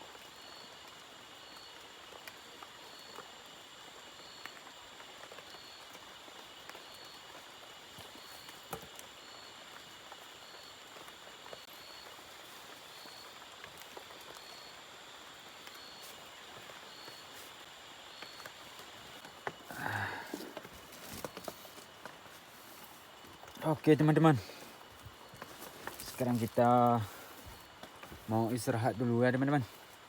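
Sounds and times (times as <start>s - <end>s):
high drone of forest creatures: 19.5s - 20.7s.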